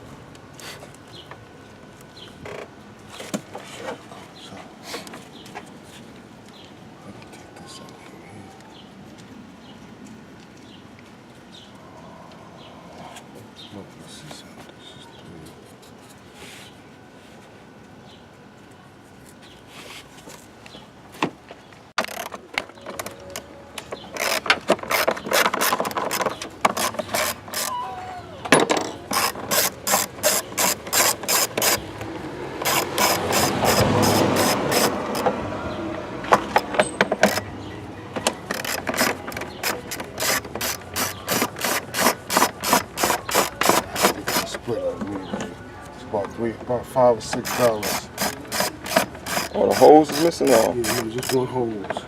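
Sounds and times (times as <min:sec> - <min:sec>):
ratchet wrench clicking: 0:26.8 - 0:27.7, 0:29.1 - 0:31.8, 0:32.6 - 0:35.3, 0:38.4 - 0:44.6, 0:47.4 - 0:51.4.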